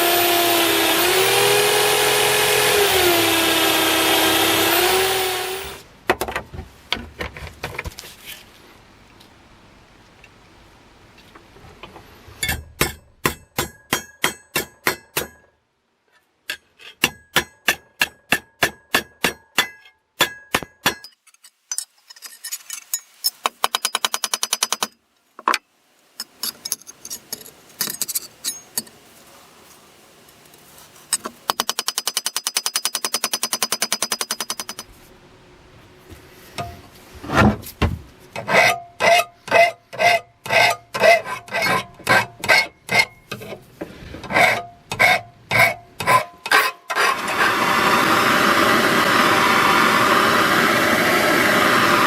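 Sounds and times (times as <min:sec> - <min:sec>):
hammer striking metal: 0:12.4 - 0:15.5, 0:17.0 - 0:21.2.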